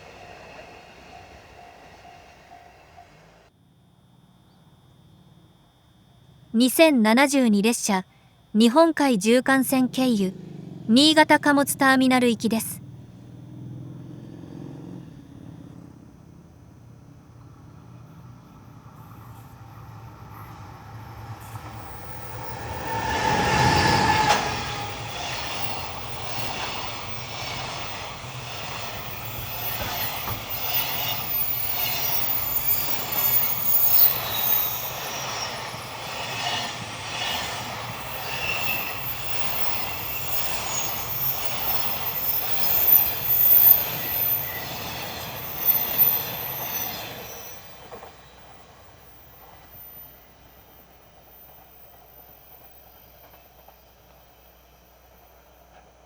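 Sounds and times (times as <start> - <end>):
freight train passing: 0.0 - 3.5, 8.6 - 56.0
wheels clacking over rail joints: 19.1 - 48.3
high thin wheel squeal: 21.4 - 53.7.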